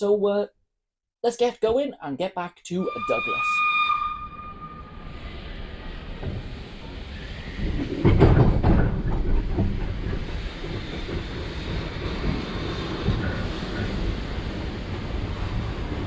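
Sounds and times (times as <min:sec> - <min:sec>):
steam train rumbling: 0:02.9 - 0:16.0
steam hissing: 0:05.0 - 0:08.9, 0:10.0 - 0:16.0.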